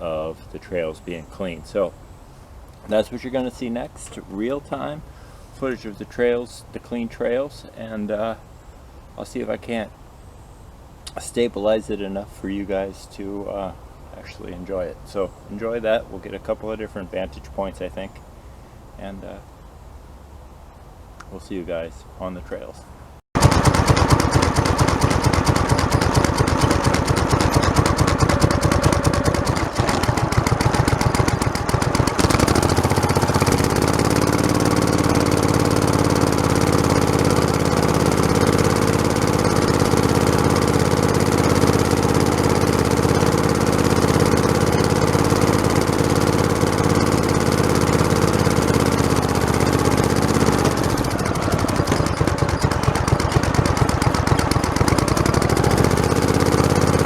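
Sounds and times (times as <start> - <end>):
lawn tractor engine rattling: 2.6 - 5.2, 23.4 - 57.0.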